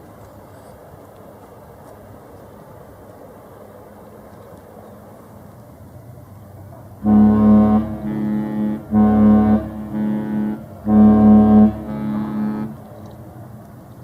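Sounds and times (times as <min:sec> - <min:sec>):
ship horn blasts: 0:07.0 - 0:13.5.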